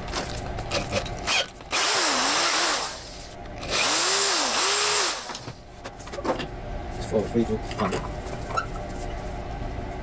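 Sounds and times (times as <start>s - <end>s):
power tool motor on steel: 1.3s - 5.4s.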